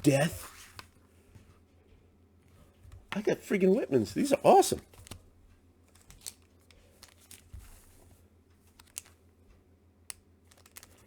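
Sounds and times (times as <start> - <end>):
comic books rustling and clicking: 0.1 - 1.6, 4.8 - 9.2, 10.4 - 11.0.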